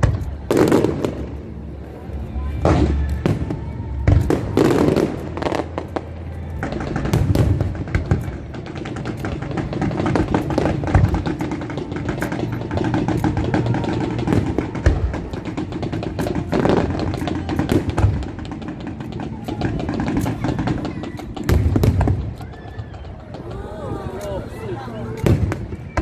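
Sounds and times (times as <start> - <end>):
fireworks booming and crackling: 0.0 - 26.0.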